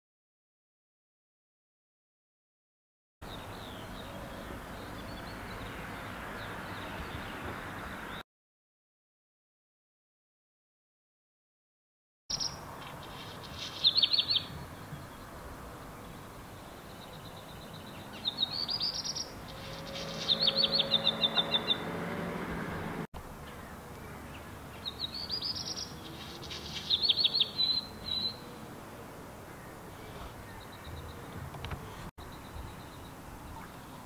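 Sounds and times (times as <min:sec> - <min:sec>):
bird singing warbles and rattles: 0:12.3 - 0:28.7, 0:29.5 - 0:34.0.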